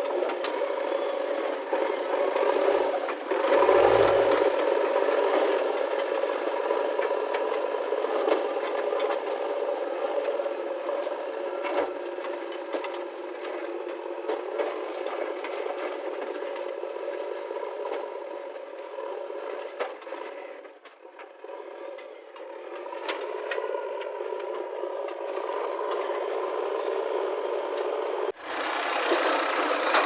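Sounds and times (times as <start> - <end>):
heavy machinery diesel engines: 0.0 - 30.0.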